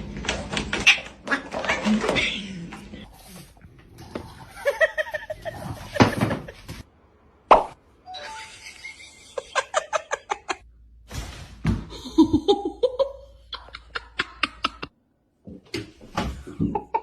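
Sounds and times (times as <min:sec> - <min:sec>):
people laughing: 0:04.5 - 0:06.8, 0:08.2 - 0:10.6, 0:11.9 - 0:14.9.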